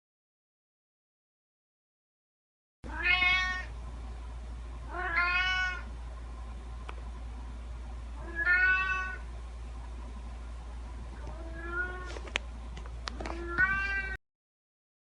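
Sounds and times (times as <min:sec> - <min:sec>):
faint low hum: 0:02.8 - 0:14.2
cat meowing: 0:02.9 - 0:03.7, 0:04.9 - 0:05.9, 0:08.2 - 0:09.3, 0:11.3 - 0:12.1, 0:13.2 - 0:14.2.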